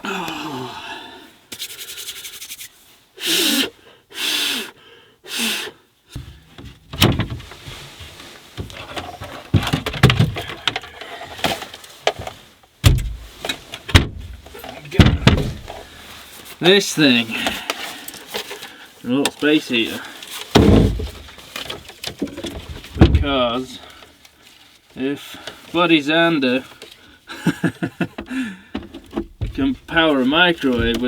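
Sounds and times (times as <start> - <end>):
gear knocking and thumping: 13.9 - 15.8, 20.6 - 21.3, 22.2 - 23.5, 29.2 - 31.0.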